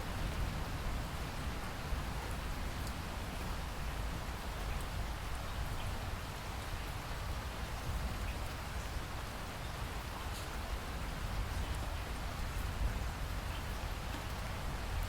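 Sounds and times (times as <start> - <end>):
steady rain hiss: 0.0 - 15.0
rain drop ticks: 2.8 - 3.0.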